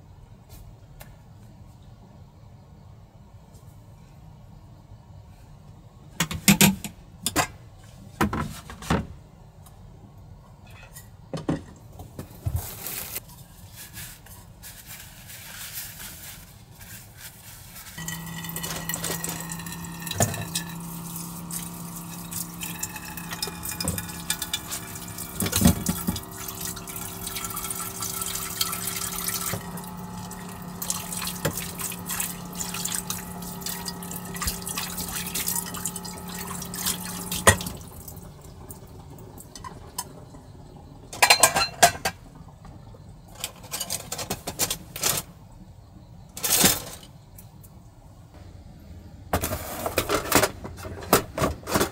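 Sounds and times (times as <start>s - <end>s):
steady low hum: 18.0s - 41.1s.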